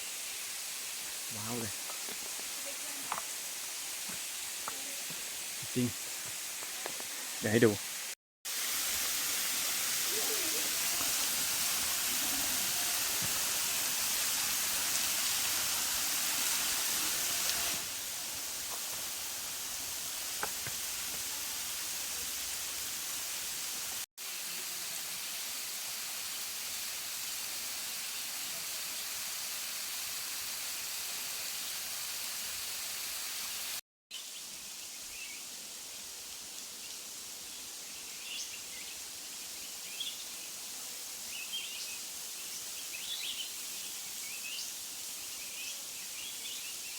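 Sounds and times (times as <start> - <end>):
waterfall rushing: 8.5 - 22.7.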